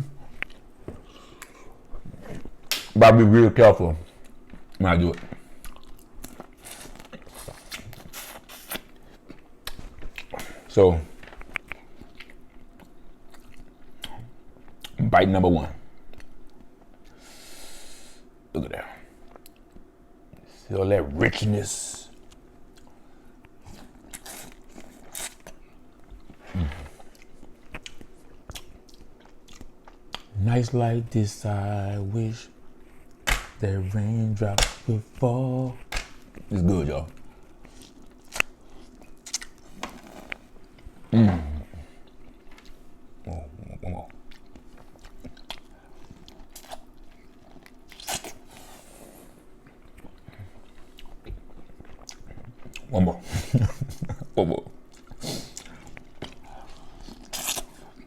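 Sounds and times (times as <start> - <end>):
chewing corn on the cob: 22.1 - 30.3, 43.8 - 48.7, 49.5 - 53.0, 54.8 - 58.0
food crunching: 22.1 - 30.4, 34.6 - 40.9, 44.0 - 48.6, 49.5 - 52.9, 54.8 - 58.0.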